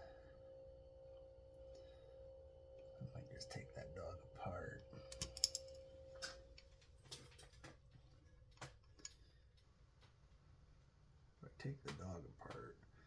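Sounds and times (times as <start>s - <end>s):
faint ringing tone: 0.0s - 6.8s
small metal parts clicking: 5.1s - 5.8s.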